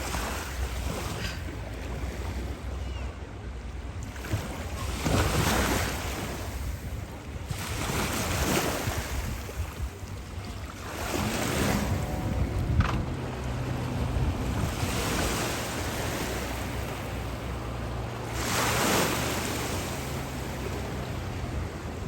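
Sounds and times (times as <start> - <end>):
sea water splashing: 0.0 - 2.8, 3.9 - 22.0
wind rushing over microphone: 4.0 - 17.3
steady low rumble: 9.6 - 18.3.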